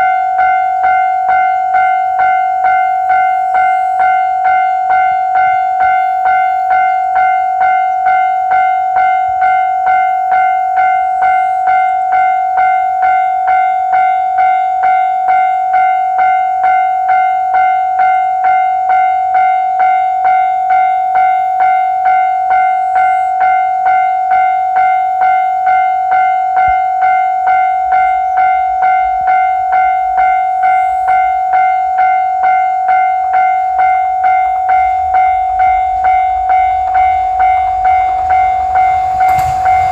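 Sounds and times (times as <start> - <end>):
low rumble of approaching train: 0.0 - 39.9
level crossing bell ringing: 20.8 - 39.9.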